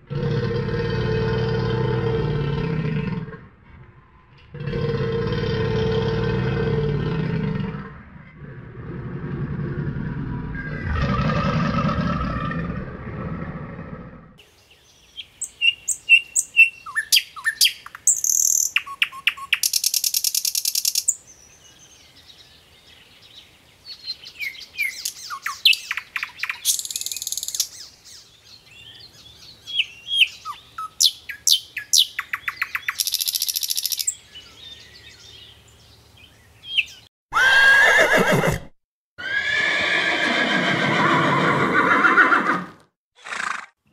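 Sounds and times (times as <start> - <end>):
alligator growling: 0.0 - 14.4
birds chirping and trilling: 0.2 - 38.5.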